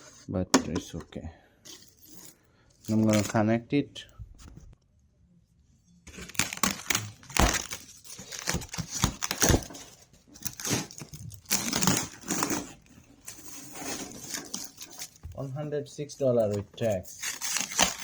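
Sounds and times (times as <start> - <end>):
packaging crinkling and tearing: 2.9 - 3.4, 6.1 - 15.6, 16.4 - 18.0.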